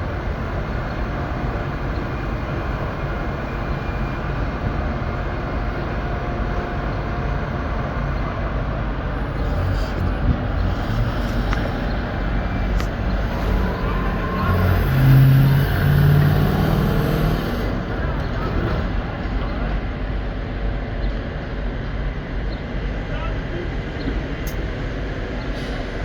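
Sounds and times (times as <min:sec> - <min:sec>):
low engine note: 0:00.0 - 0:22.2
engine rumble of machinery: 0:00.0 - 0:26.0.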